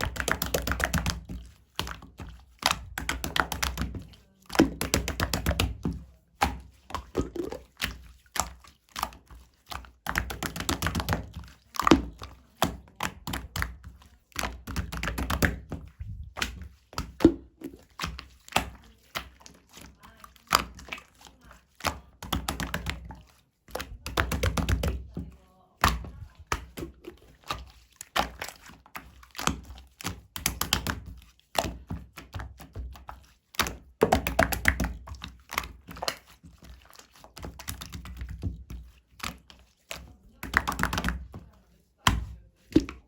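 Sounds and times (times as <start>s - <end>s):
soft slime thuds: 3.8s - 7.8s, 40.0s - 43.0s
slime clicking and popping: 6.4s - 8.0s.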